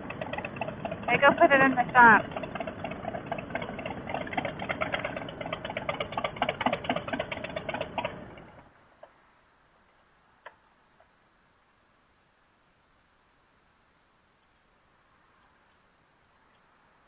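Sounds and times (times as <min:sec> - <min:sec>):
motorcycle engine running: 0:00.0 - 0:08.7
faint clicks: 0:14.4 - 0:14.7, 0:15.3 - 0:16.8.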